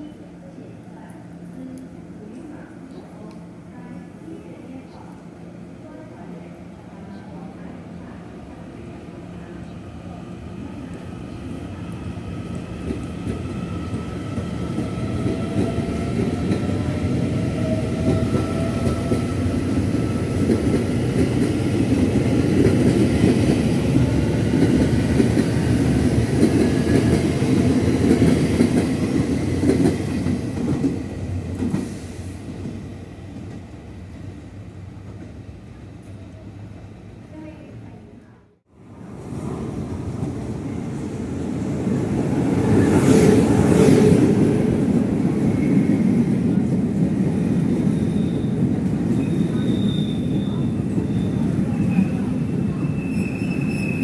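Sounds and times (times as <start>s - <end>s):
train wheels rumbling on rails: 10.8s - 35.4s.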